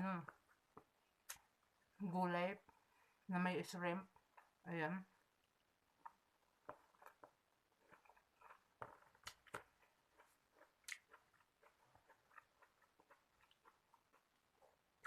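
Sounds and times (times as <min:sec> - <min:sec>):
person chewing food: 0:04.1 - 0:15.0.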